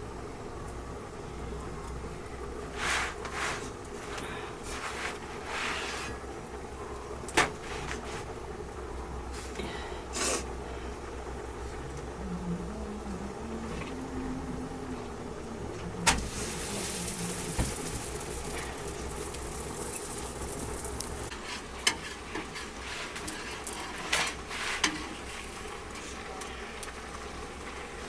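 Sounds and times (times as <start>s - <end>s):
food sizzling in a pan: 16.1s - 21.3s.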